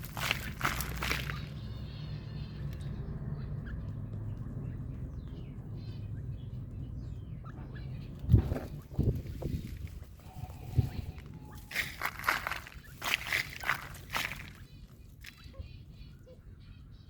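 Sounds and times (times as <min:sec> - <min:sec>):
rustling bursts: 0:00.0 - 0:01.6, 0:08.6 - 0:14.7
birds chirping faintly: 0:00.0 - 0:17.0
steady low rumble: 0:02.8 - 0:16.2.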